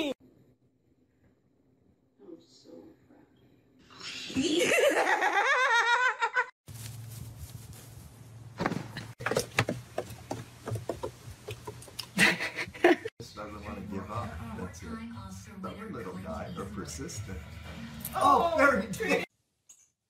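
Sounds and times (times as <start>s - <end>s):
small knocks: 8.6s - 12.0s.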